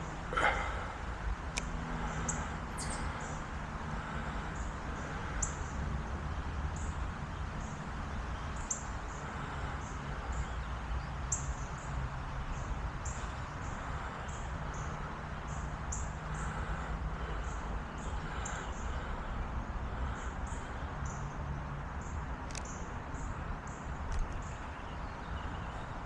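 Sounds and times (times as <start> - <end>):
bird chirping: 2.1 - 3.4.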